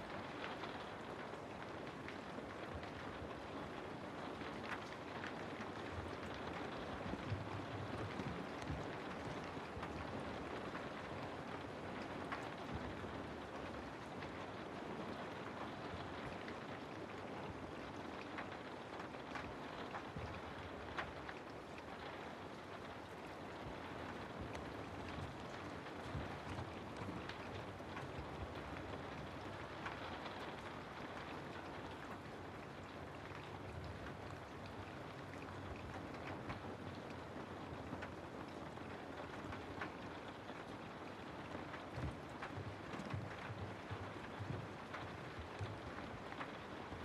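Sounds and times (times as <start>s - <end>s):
rain falling through trees: 0.0s - 47.0s
raindrops ticking: 17.5s - 47.0s.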